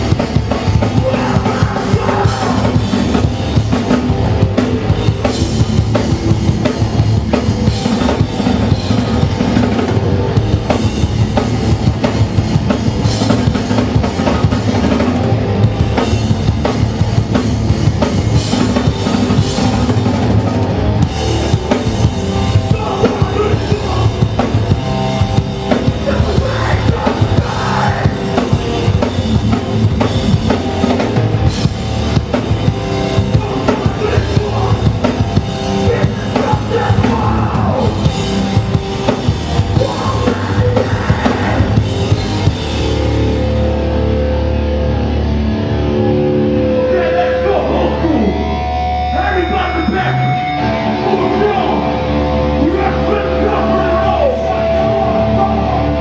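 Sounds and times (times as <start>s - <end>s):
drum kit pounding: 0.0s - 44.3s
punk band playing live: 0.0s - 56.0s.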